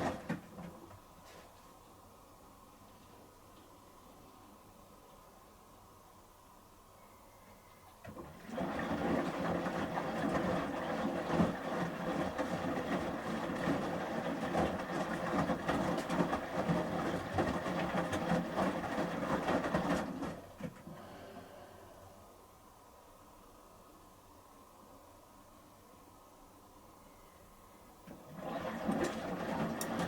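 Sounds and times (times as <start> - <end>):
washing machine drum sloshing: 0.0 - 1.2, 8.0 - 21.2, 28.0 - 30.0.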